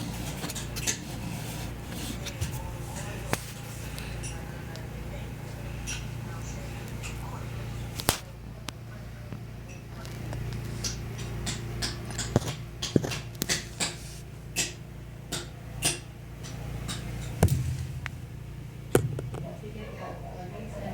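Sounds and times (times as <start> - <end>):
washing machine hum: 0.0 - 20.9
sharp clicks and knocks: 10.8 - 14.0.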